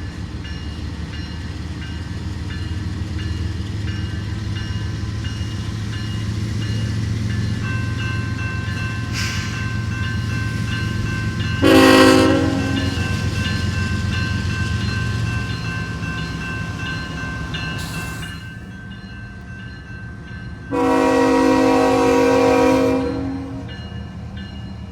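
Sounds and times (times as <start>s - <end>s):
diesel locomotive rumble: 0.0s - 24.9s
train horn blast: 11.6s - 13.2s, 20.7s - 23.8s.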